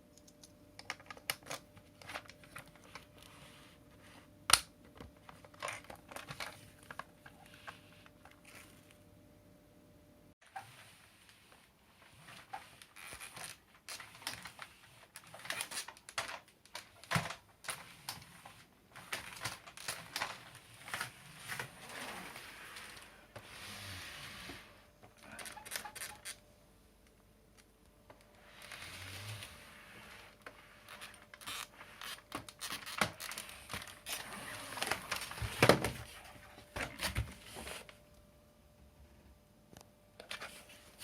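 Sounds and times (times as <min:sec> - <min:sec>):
plastic parts clicking and rustling: 0:00.0 - 0:03.3, 0:04.5 - 0:08.6, 0:12.4 - 0:22.3, 0:25.1 - 0:26.4, 0:30.4 - 0:37.3.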